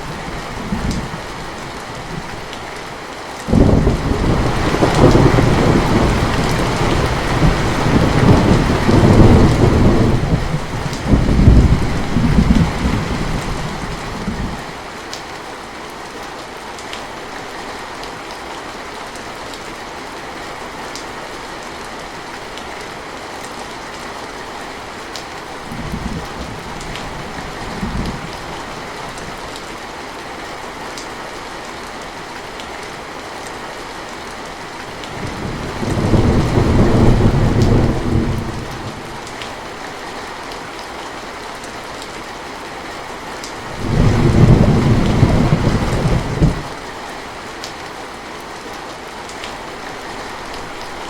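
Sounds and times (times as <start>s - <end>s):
steady rain falling: 0.0s - 51.0s
thunder rumbling: 3.5s - 14.6s, 35.2s - 39.3s, 43.7s - 46.8s.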